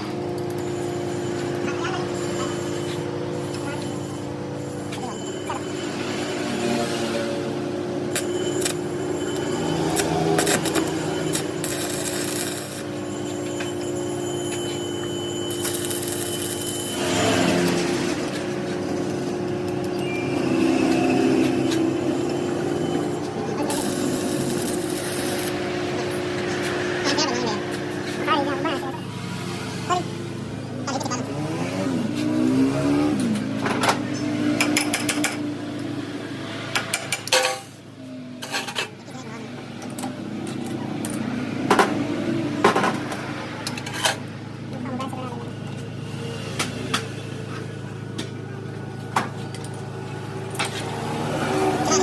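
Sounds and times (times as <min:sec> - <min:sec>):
motor running: 0:00.0 - 0:35.4
machine hum: 0:00.0 - 0:37.6.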